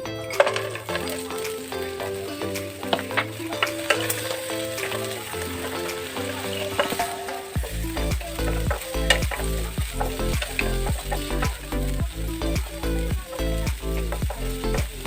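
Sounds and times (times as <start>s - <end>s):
background music: 0.0s - 15.0s
stirring clicks: 0.2s - 7.5s
bass beat thumps: 7.6s - 15.0s.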